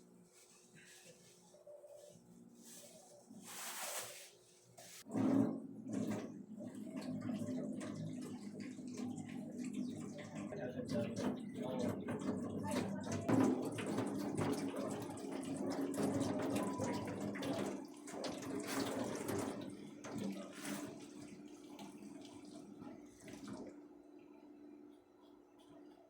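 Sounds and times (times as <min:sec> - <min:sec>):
tap water running into sink: 0:05.1 - 0:23.8.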